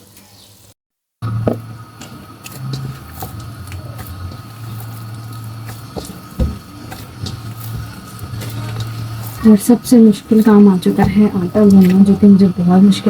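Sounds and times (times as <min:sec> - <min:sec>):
low mechanical hum: 0:01.2 - 0:13.0.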